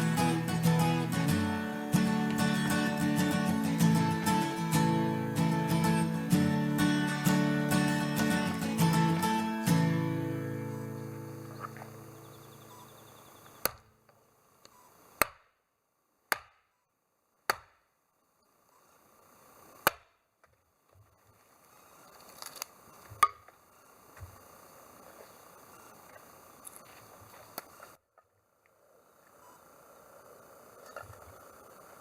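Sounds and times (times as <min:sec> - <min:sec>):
blade chopping firewood: 0:13.6 - 0:13.9, 0:15.2 - 0:15.5, 0:16.3 - 0:16.7, 0:17.4 - 0:17.9, 0:19.8 - 0:20.1.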